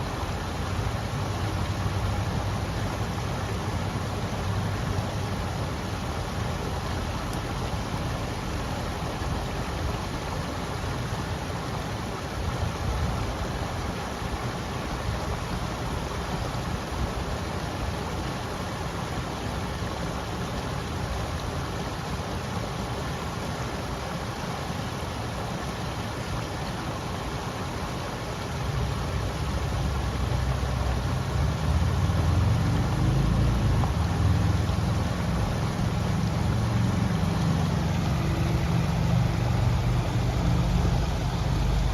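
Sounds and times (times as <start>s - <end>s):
river water rushing: 0.0s - 41.9s
low engine drone: 31.3s - 41.9s.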